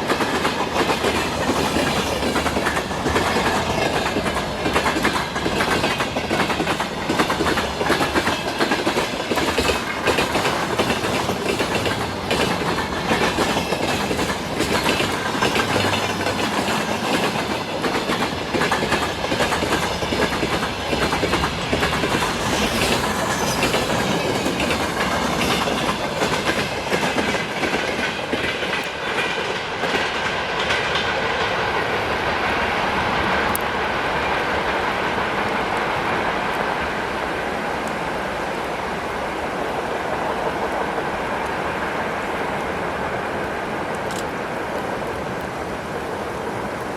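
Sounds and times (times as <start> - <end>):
train wheels clattering over rail joints: 0.0 - 37.1.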